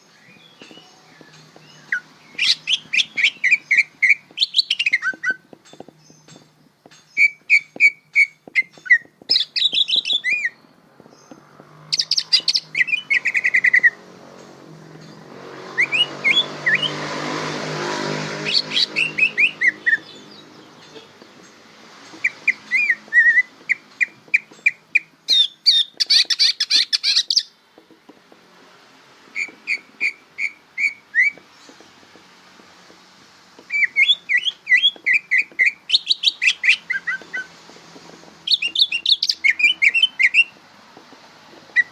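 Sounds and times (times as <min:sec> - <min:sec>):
bird chirping and whistling: 0:00.1 - 0:05.5, 0:07.0 - 0:10.6, 0:11.9 - 0:14.0, 0:15.6 - 0:17.1, 0:18.4 - 0:21.1, 0:22.2 - 0:27.5, 0:29.4 - 0:31.5, 0:33.7 - 0:37.5, 0:38.4 - 0:40.6.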